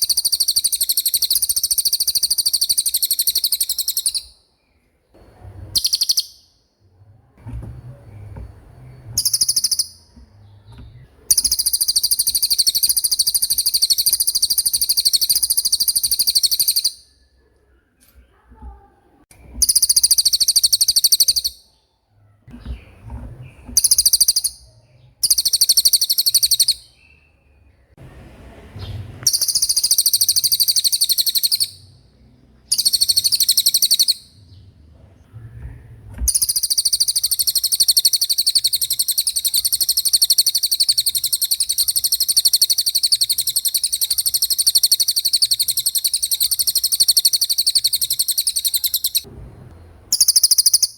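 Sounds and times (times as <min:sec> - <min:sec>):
songbird rapid high trill: 0:11.3 - 0:17.0, 0:29.3 - 0:31.9, 0:32.7 - 0:34.3, 0:36.3 - 0:49.2, 0:50.1 - 0:50.9.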